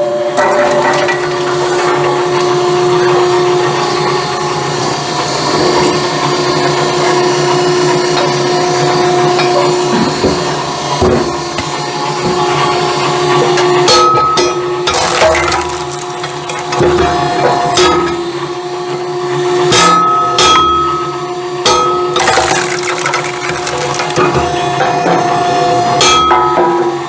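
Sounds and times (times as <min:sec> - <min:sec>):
motor hum: 0:22.2 - 0:26.1.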